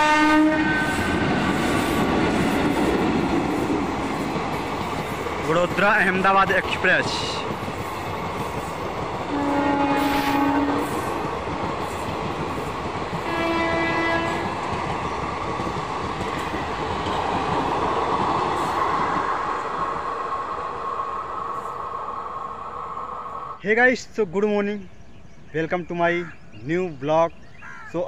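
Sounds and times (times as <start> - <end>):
locomotive horn blasts: 0.0 - 1.0, 9.3 - 11.0, 13.2 - 14.5
train wheels clattering on rails: 0.7 - 20.0.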